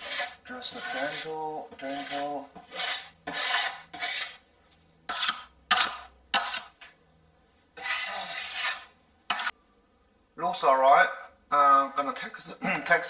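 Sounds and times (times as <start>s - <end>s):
putty knife scraping wet plaster: 0.0s - 4.4s, 5.1s - 6.9s, 7.8s - 9.5s.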